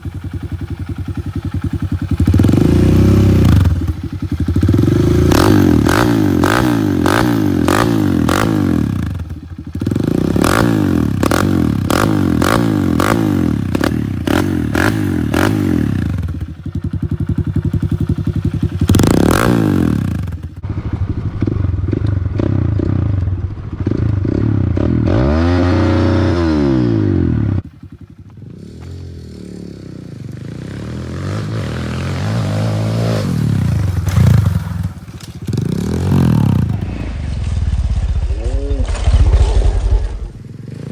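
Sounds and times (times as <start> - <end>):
dirt bike engine revving: 0.0 - 40.9
exhaust cracks: 33.3 - 40.9.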